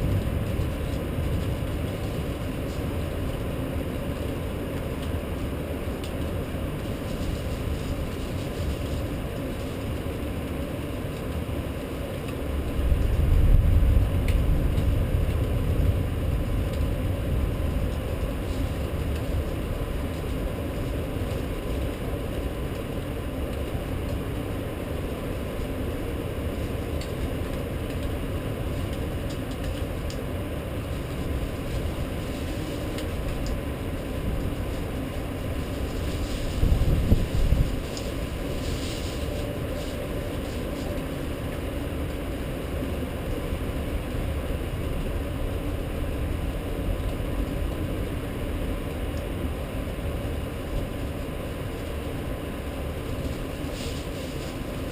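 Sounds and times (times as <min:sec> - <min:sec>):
thunder rumbling: 0:00.0 - 0:06.0, 0:12.6 - 0:22.7, 0:25.0 - 0:42.8
rainstorm rumble: 0:00.0 - 0:54.9.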